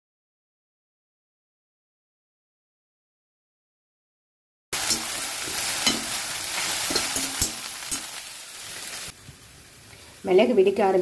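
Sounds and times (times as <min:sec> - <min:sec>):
metal ladle scraping pan: 0:04.8 - 0:08.2
okra sizzling in hot oil: 0:04.8 - 0:11.0.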